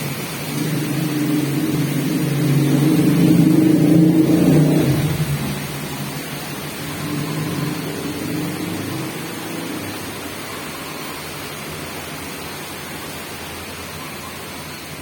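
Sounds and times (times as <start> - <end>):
rain hissing: 0.0 - 15.0
vehicle engine: 0.0 - 15.0.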